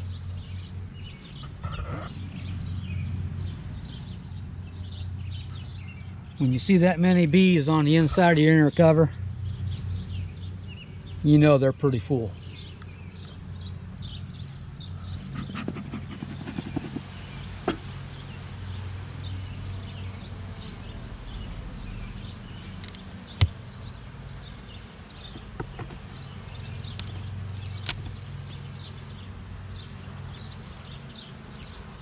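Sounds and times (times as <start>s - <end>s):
bees buzzing: 12.4s - 32.0s
sharp clicks and knocks: 15.5s - 17.9s, 25.3s - 26.2s.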